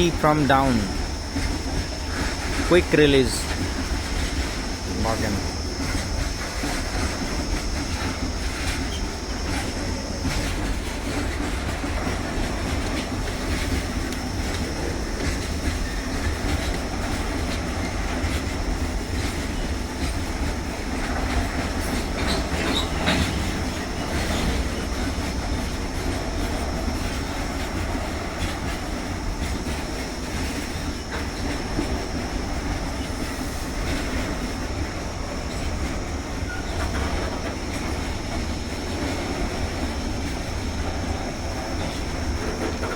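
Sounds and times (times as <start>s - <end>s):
high-pitched whine: 0.0s - 16.7s
freight train rolling past: 0.0s - 42.9s
wheels clicking over rail joints: 0.0s - 42.9s.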